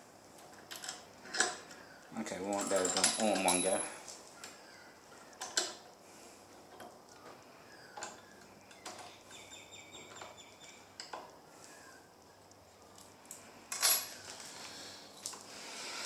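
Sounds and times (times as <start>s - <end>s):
metal bolts clinking: 0.7s - 4.0s.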